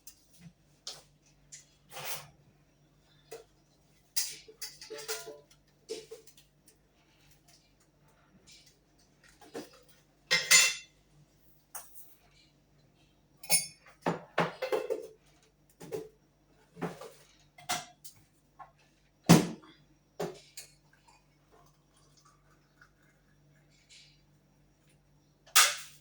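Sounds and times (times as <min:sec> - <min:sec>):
kitchenware clinking and knocking: 0:04.2 - 0:06.2, 0:10.3 - 0:10.9, 0:13.4 - 0:15.2.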